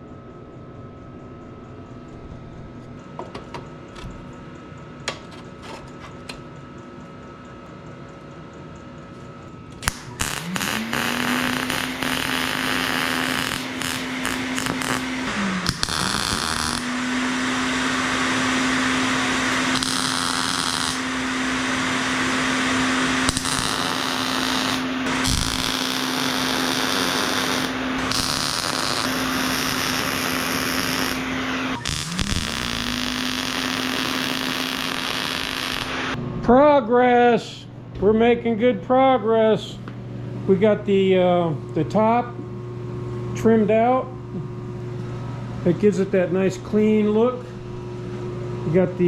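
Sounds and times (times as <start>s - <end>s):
angle grinder grinding metal: 9.8s - 36.2s.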